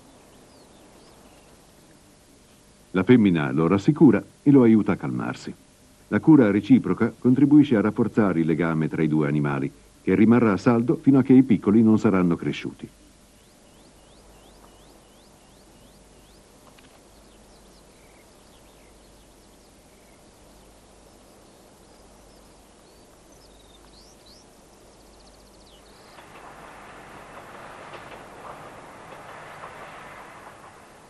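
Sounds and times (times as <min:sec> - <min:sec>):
faint bird chirps: 0:00.0 - 0:02.1, 0:12.9 - 0:29.4
passing train rumble: 0:25.8 - 0:31.0.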